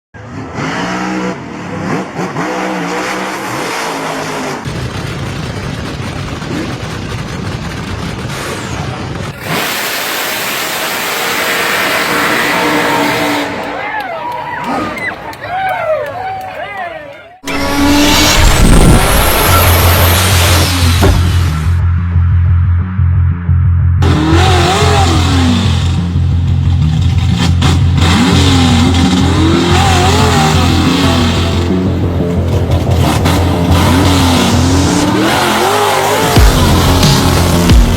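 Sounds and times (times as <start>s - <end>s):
car engine revving: 0.2s - 13.8s, 17.4s - 37.9s
loud music with heavy bass: 17.4s - 37.9s.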